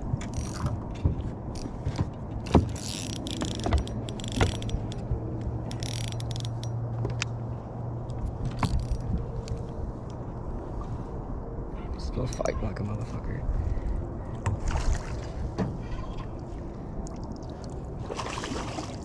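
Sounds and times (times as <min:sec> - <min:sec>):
fishing gear clicking and rattling: 0:00.1 - 0:07.4, 0:08.1 - 0:10.2.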